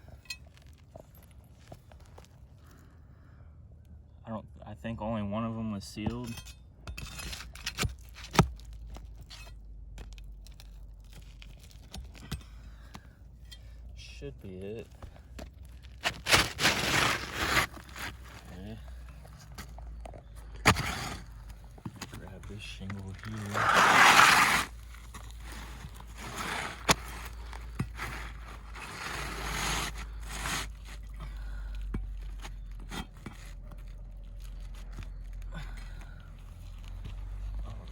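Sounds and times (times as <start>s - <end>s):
gritty shingle scraping: 14.6s - 37.9s.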